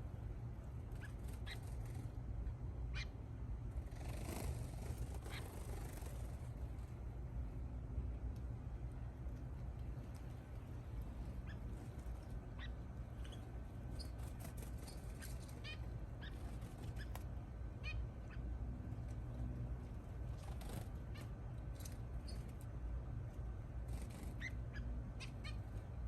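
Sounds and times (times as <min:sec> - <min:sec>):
steady low hum: 0:00.0 - 0:26.0
finches chirping: 0:00.9 - 0:02.1, 0:11.4 - 0:17.2, 0:17.8 - 0:18.5, 0:20.6 - 0:22.6, 0:23.9 - 0:26.0.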